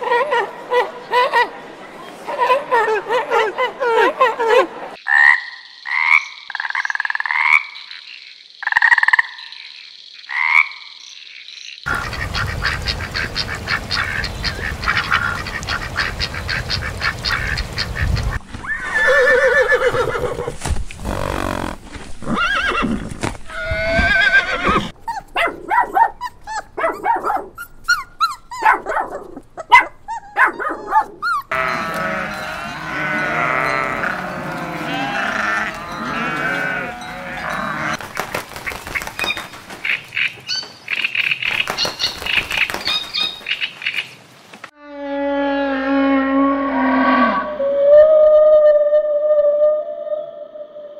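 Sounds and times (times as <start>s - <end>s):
frog croaking: 5.0s - 12.8s
horses grazing: 11.9s - 25.6s, 26.4s - 44.0s
dogs and puppy: 25.0s - 31.7s.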